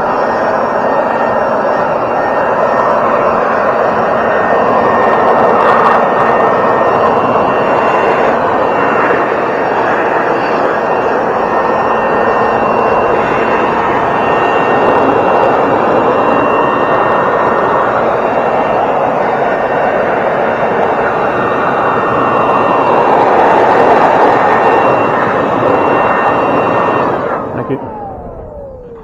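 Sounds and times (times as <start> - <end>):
leaf blower running: 22.7 - 29.0.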